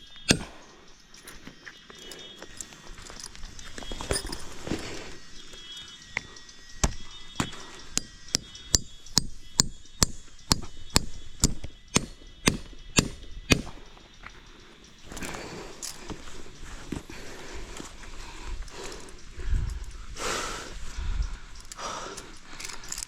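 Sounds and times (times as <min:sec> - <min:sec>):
chopping strikes: 0:00.1 - 0:00.6, 0:06.8 - 0:13.8.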